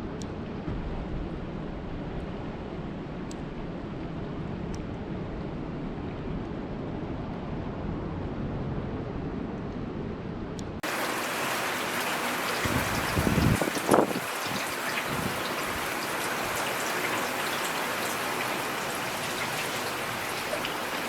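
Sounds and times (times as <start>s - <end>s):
rain falling: 10.8s - 21.0s.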